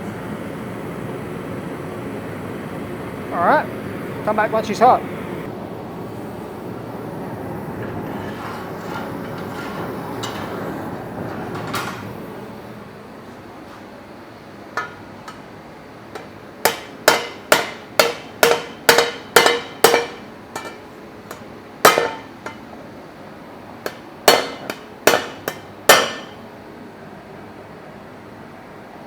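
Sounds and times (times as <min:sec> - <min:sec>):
forge and fans humming: 0:00.0 - 0:29.0
hammer striking metal: 0:14.8 - 0:15.5, 0:16.1 - 0:22.7, 0:23.8 - 0:26.4.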